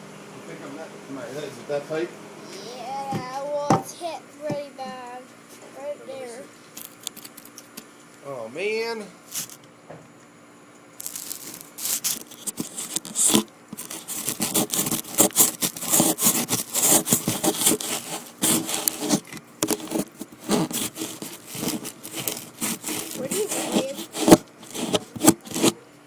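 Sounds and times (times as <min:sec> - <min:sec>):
phone scraping against surface: 0:11.0 - 0:25.8.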